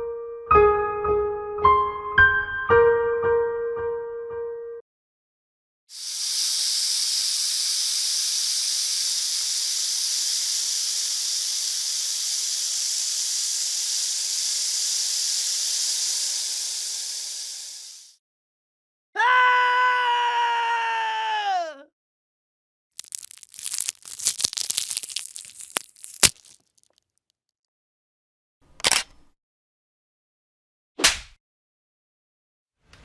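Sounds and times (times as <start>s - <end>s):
steady hiss: 5.9s - 18.2s.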